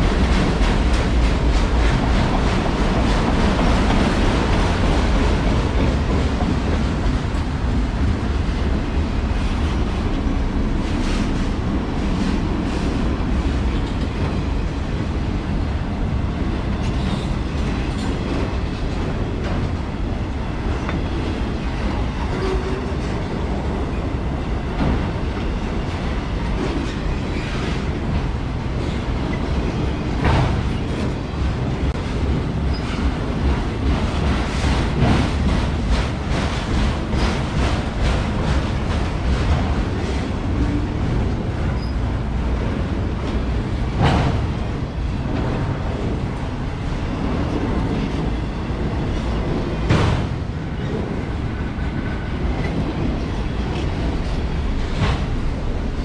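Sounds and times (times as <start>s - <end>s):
freight train cars rumbling: 0.0s - 56.0s.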